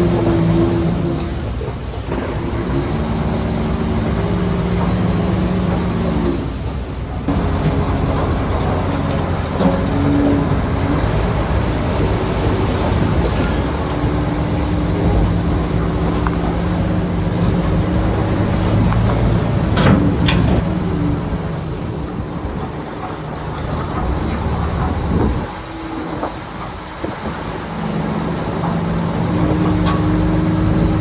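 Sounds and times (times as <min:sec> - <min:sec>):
heavy diesel engine running: 0:00.0 - 0:31.0
sharp metallic clanks: 0:07.3 - 0:21.5.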